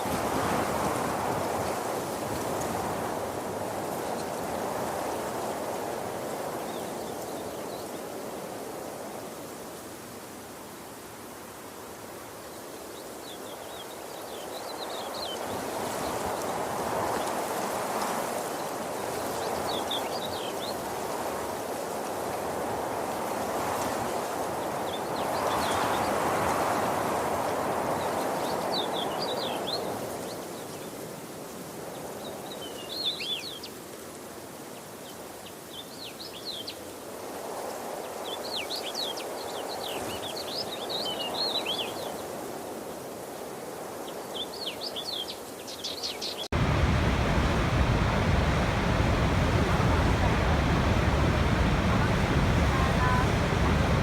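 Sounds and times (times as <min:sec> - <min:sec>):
rushing water: 0:00.0 - 0:06.6, 0:46.4 - 0:54.0
small birds chirping: 0:44.4 - 0:54.0.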